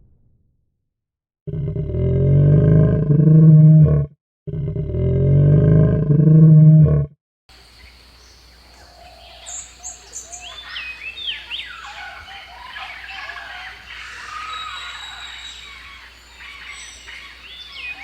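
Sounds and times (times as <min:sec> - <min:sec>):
dinosaur roar: 0:01.5 - 0:07.2
many birds chirping: 0:07.6 - 0:18.0.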